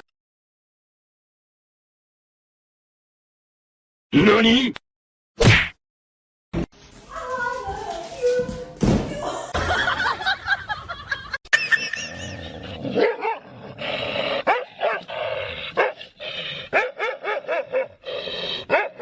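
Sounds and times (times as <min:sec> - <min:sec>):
dog barking: 0:12.9 - 0:13.5, 0:14.4 - 0:15.1, 0:15.8 - 0:16.0, 0:16.7 - 0:18.0, 0:18.6 - 0:19.0.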